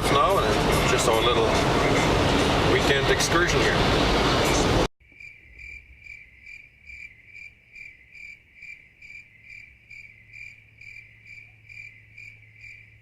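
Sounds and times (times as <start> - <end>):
cricket chirping: 5.0 - 13.0.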